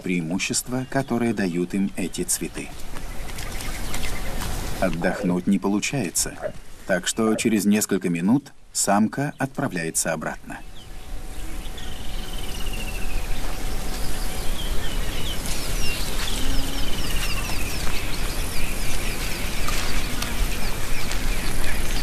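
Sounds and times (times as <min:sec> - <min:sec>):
outdoor hiss: 0:04.1 - 0:22.0
bird warbling trills: 0:10.7 - 0:22.0.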